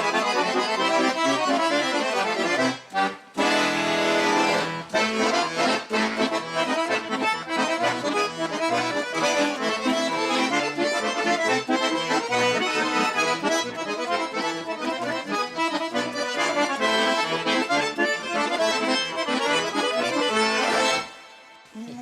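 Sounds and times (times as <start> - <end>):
accordion folk tune: 0.0 - 22.0.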